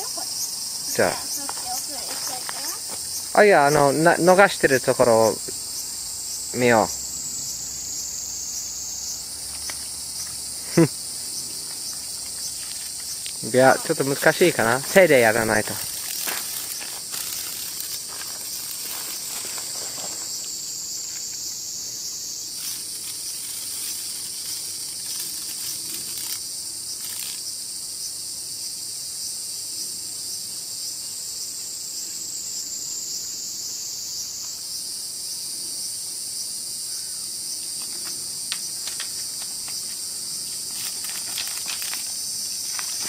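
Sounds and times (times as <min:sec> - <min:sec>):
cicadas buzzing: 0:00.0 - 0:43.0
faint ticks and rustles: 0:01.0 - 0:03.8, 0:11.6 - 0:21.6, 0:22.5 - 0:27.5, 0:37.6 - 0:43.0.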